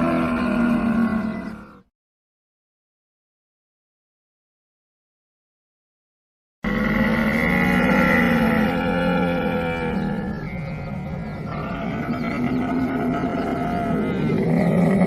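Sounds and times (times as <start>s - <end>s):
camel calling: 6.7s - 15.0s.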